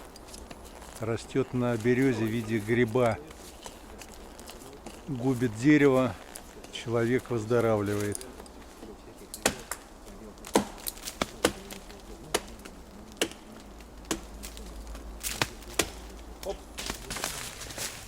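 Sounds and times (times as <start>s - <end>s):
blade chopping into fungus: 15.2s - 16.1s.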